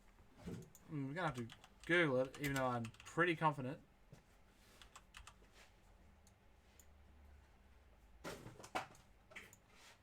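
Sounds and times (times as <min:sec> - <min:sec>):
computer keyboard clicks: 0:01.3 - 0:03.1, 0:04.8 - 0:05.4.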